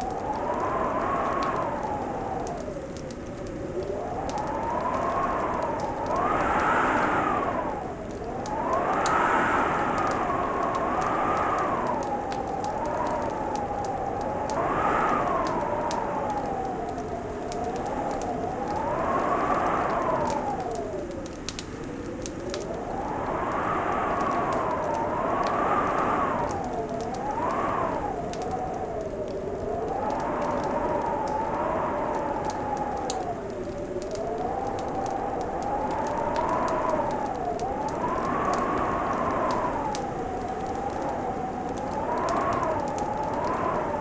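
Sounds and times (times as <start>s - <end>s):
wind whistling: 0.0s - 44.0s
wood fire crackling: 0.0s - 44.0s.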